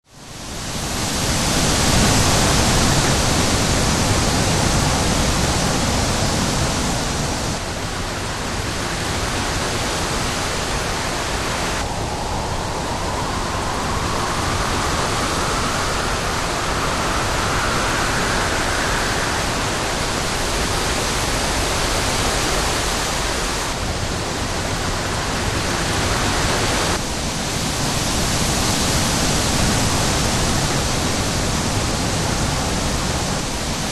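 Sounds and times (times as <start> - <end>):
strong wind rushing: 0.2 - 33.9
wind whistle: 8.8 - 23.8.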